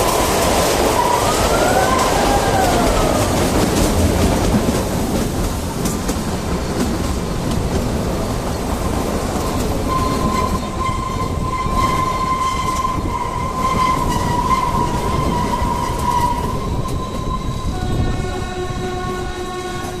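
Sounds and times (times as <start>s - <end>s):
train horn: 0.0s - 4.1s, 9.9s - 20.0s
train rumbling with whine: 0.0s - 20.0s.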